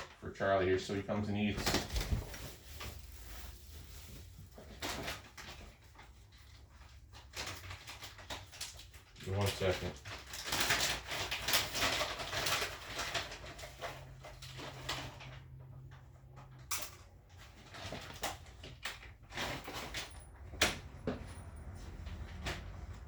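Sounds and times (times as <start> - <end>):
rustling and handling noise: 0.0 - 23.0.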